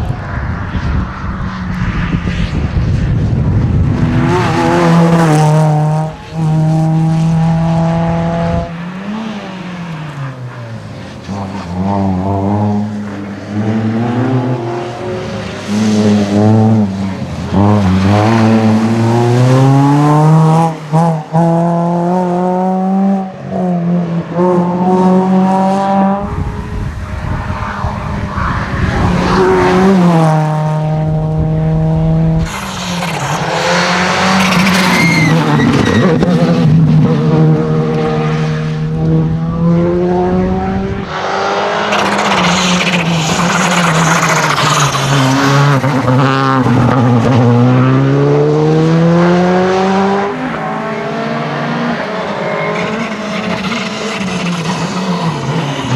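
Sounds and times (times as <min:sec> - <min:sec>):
rally car engines revving: 0:00.0 - 0:55.9
tyres rushing on gravel: 0:41.1 - 0:47.5.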